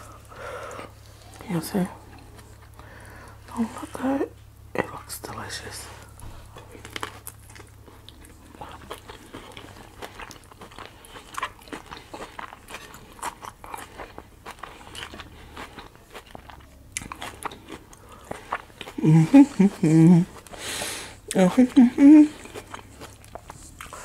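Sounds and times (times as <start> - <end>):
crisp lettuce crunching: 6.4 - 24.0.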